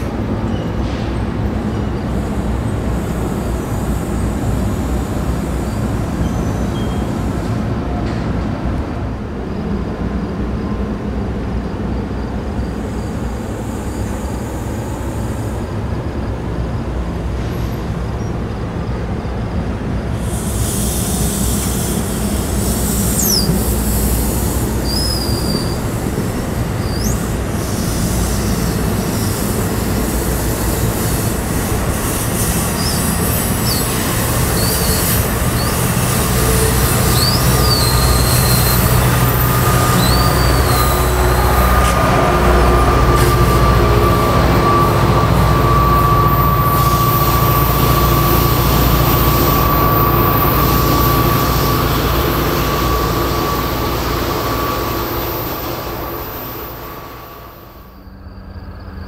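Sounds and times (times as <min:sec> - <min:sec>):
train wheels rumbling on rails: 0:00.0 - 0:59.0
wheel squeals: 0:05.6 - 0:08.2, 0:20.5 - 0:57.3
steady high whine: 0:19.4 - 0:59.0.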